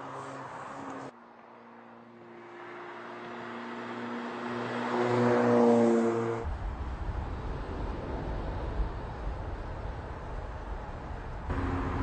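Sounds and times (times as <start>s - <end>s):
low engine rumble: 6.5s - 12.0s
car engine droning: 11.4s - 12.0s.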